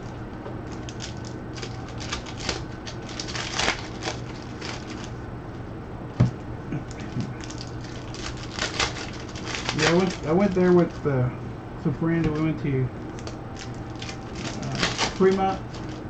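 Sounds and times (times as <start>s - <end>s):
low hum: 0.0s - 16.0s
cards clicking and rustling: 0.7s - 5.1s, 6.9s - 10.9s, 13.1s - 16.0s.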